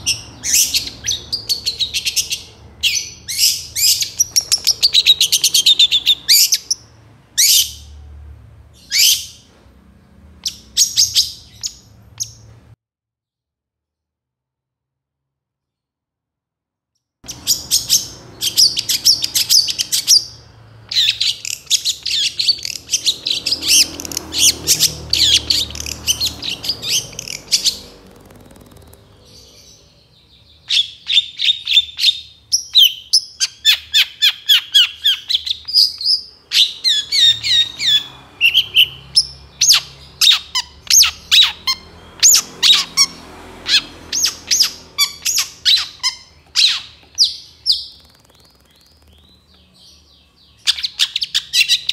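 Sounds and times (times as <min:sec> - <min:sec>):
shrike singing rapid chirps: 0:00.0 - 0:07.9, 0:17.2 - 0:51.9.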